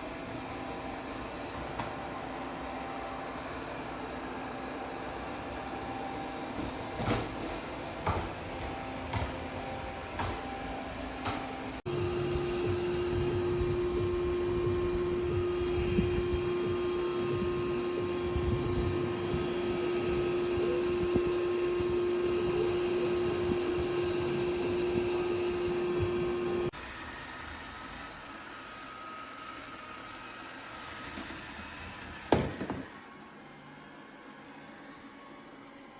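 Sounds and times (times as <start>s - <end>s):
robot vacuum motor whirring: 11.9s - 33.6s.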